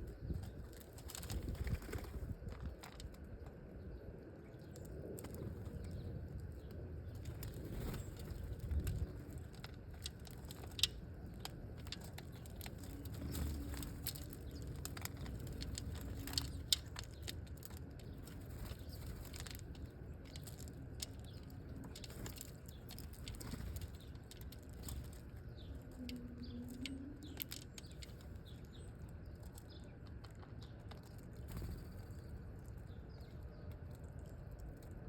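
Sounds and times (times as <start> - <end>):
birds pecking seed at a feeder: 0.0 - 35.0.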